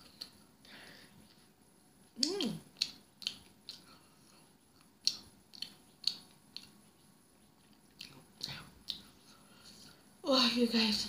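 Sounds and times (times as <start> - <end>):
wet chewing clicks and smacks: 2.2 - 4.0, 4.8 - 9.1.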